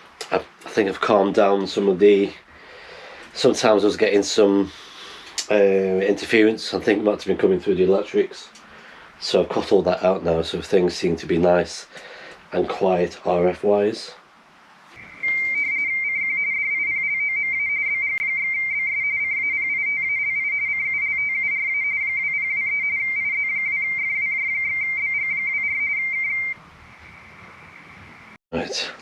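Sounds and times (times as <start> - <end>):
high-pitched electronic tone: 15.0 - 27.3.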